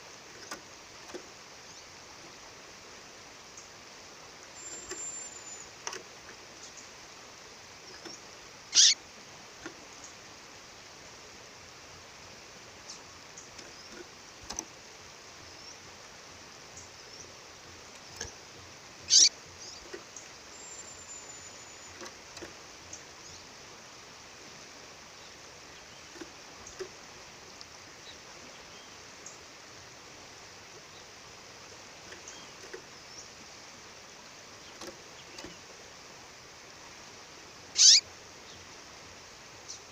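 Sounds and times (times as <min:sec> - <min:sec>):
faint bird chirps: 0:04.5 - 0:05.8, 0:07.8 - 0:09.0, 0:19.0 - 0:22.1, 0:37.7 - 0:38.7.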